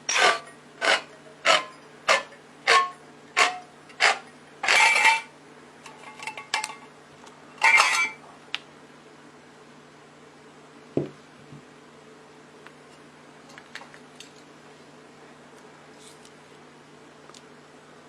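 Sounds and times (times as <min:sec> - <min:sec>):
hand scraping strokes: 0:00.0 - 0:05.3
small metal parts clinking: 0:07.6 - 0:08.2.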